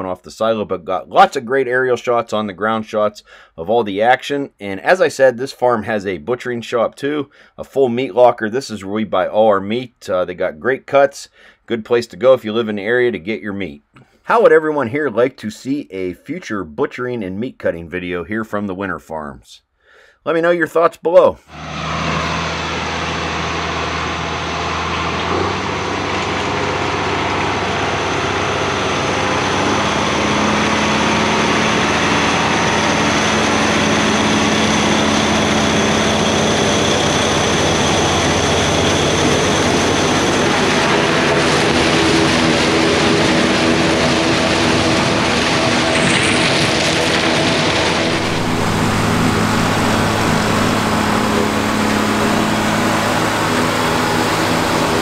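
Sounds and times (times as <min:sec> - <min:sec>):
diesel tractor engines: 0:21.5 - 0:55.0
silage chopping machinery: 0:21.5 - 0:55.0.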